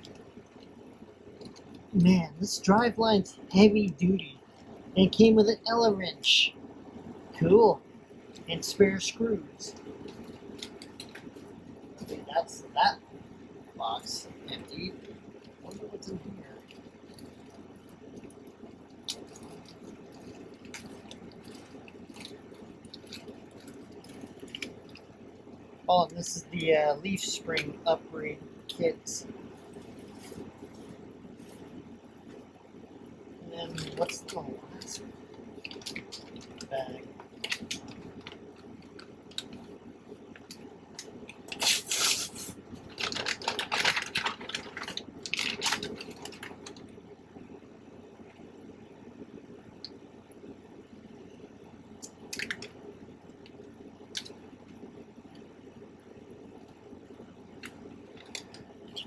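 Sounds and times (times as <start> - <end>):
plastic bags crinkling: 19.0 - 25.1, 35.6 - 39.6, 42.8 - 46.8.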